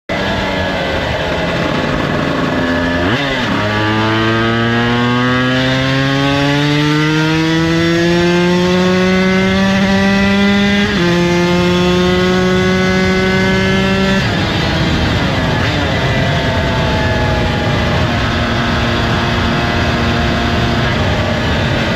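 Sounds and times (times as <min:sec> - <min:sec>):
two-stroke motorcycle engine: 0:00.1 - 0:21.9.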